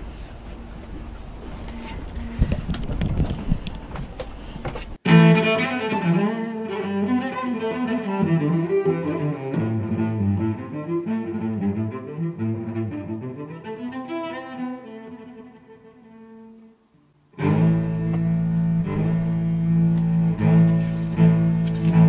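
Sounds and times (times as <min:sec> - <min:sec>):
wind noise: 0:00.0 - 0:05.0
bowed strings music: 0:05.0 - 0:22.0.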